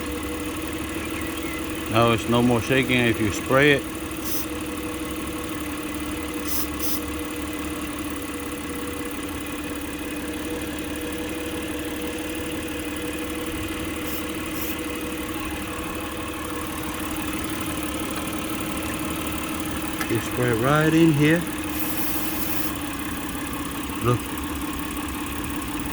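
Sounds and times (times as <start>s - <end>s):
car engine idling: 0.0s - 25.9s
spray hissing: 4.2s - 4.6s, 6.4s - 7.1s, 13.9s - 14.9s, 21.6s - 22.8s.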